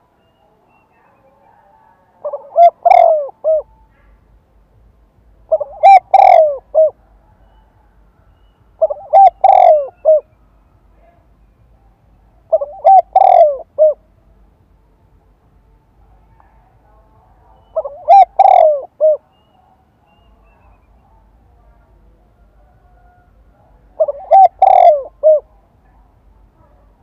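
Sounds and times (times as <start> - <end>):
dove cooing: 2.2 - 3.8, 5.5 - 7.9, 8.8 - 10.3, 12.5 - 14.0, 17.6 - 19.4, 22.5 - 25.6.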